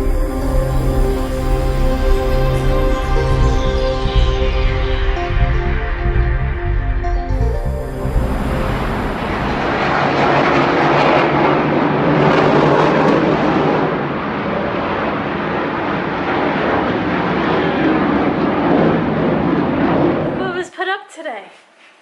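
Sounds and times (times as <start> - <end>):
fighter jets flying over: 7.8 - 20.6.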